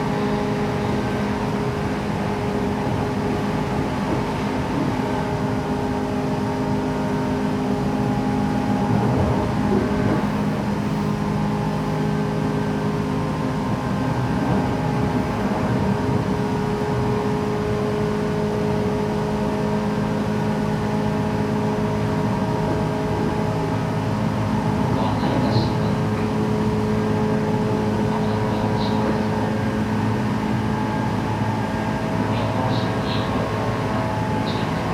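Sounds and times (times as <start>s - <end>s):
wheels rumbling on rail: 0.0s - 34.9s
train motor hum: 25.0s - 34.9s.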